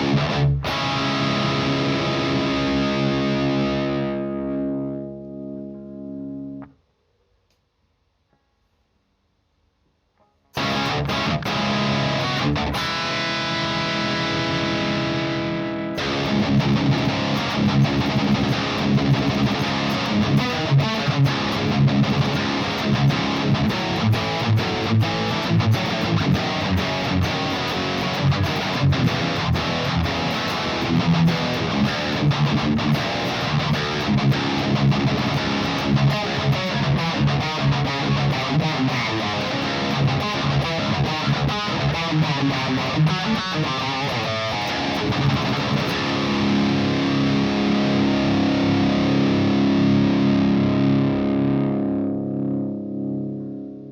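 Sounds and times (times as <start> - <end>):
distorted electric guitar riffing: 0.0 - 6.7, 10.5 - 53.9.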